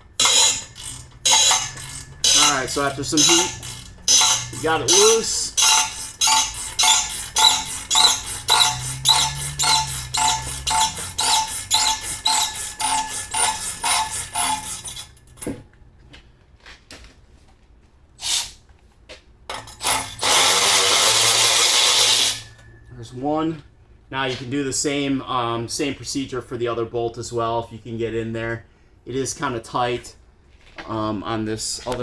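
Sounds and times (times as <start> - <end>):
wrench squeaking on bolt: 0.0 - 15.6, 18.2 - 18.6, 19.5 - 22.9
metal clanks: 0.0 - 15.7, 19.5 - 23.0.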